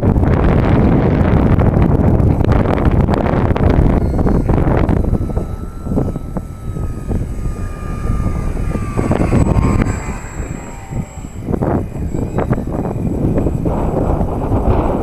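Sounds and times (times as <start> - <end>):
wind buffeting microphone: 0.0 - 15.0
model plane motor whining: 0.4 - 15.0.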